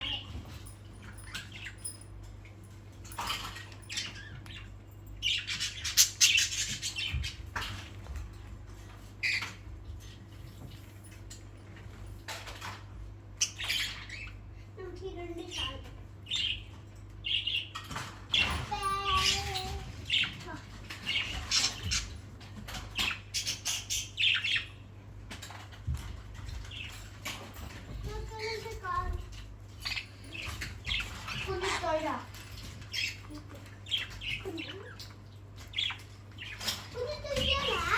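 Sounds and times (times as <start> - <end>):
parrots chirping and squawking: 0.0 - 37.9
parrots squawking: 17.3 - 24.8, 29.7 - 37.9.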